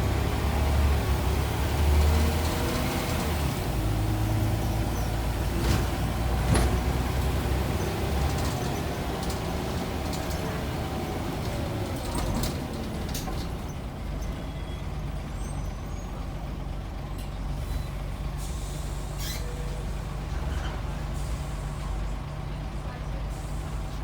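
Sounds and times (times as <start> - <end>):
bus diesel engine running: 0.0 - 24.0
air brake hisses: 17.6 - 19.8, 21.2 - 22.0.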